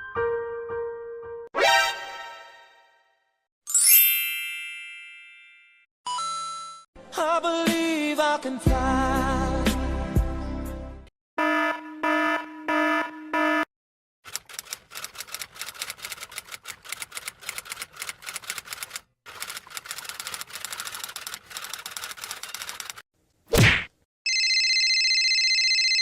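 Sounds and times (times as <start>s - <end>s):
rapid typing clicks: 14.3s - 23.0s.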